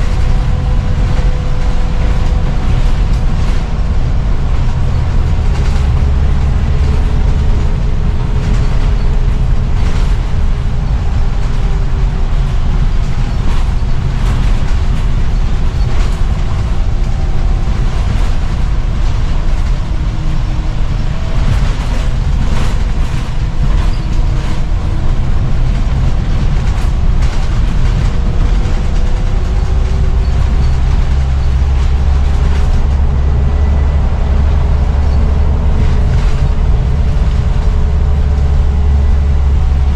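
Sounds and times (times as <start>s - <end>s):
bus diesel engine rumbling: 0.0s - 39.9s
engine and drivetrain whine: 0.0s - 39.9s.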